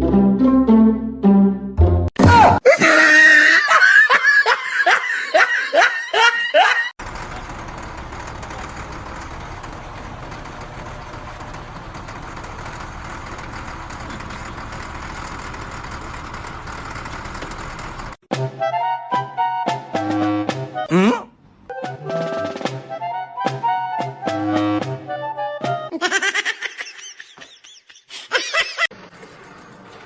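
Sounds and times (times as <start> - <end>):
person laughing hard: 2.6 - 6.9, 25.9 - 28.9.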